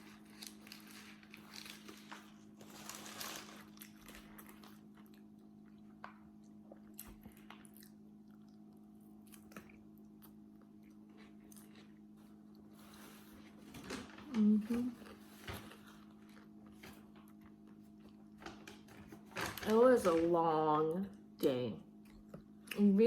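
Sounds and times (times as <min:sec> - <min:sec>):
person chewing food: 0:00.0 - 0:13.7, 0:15.0 - 0:19.0.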